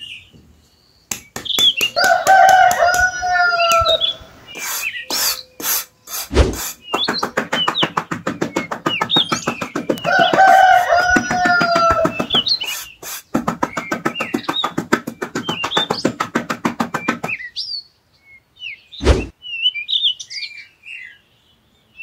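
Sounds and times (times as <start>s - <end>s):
small birds chirping: 0.0s - 22.0s
rooster crowing: 1.9s - 4.4s, 10.0s - 12.5s.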